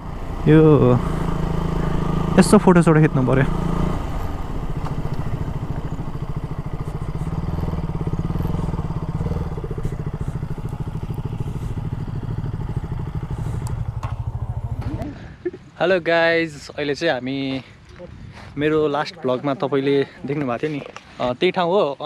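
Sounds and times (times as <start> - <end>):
motorcycle engine idling: 0.0 - 15.5.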